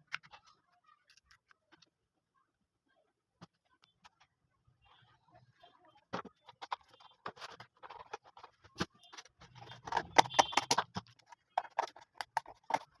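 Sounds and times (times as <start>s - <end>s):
small hard parts clicking: 6.6s - 13.0s.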